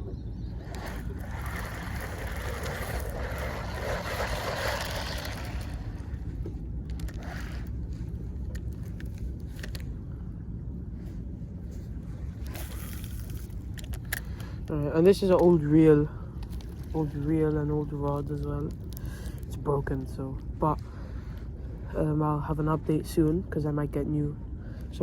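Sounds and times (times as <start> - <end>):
steady low rumble: 0.0 - 25.0
sea water washing over rocks: 0.7 - 6.3.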